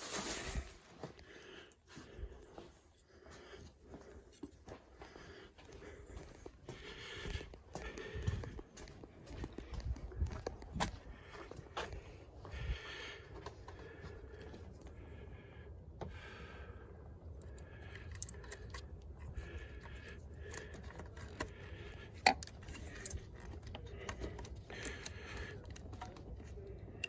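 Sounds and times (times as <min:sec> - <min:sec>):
metallic clicks of tools: 0:17.4 - 0:27.0.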